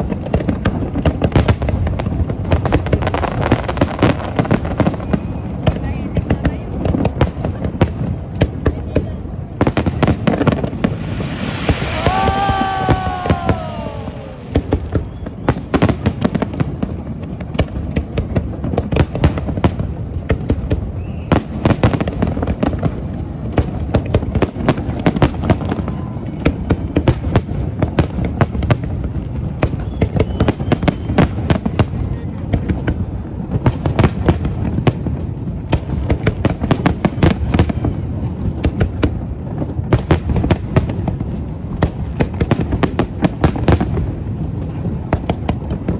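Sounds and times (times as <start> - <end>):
fireworks bangs and crackles: 0.0 - 45.9
falling tone: 10.5 - 15.2.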